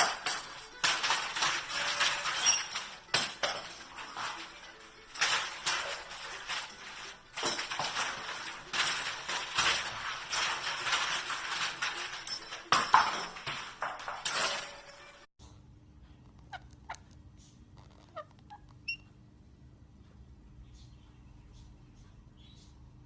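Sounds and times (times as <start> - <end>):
parrot chirping: 17.8 - 19.1.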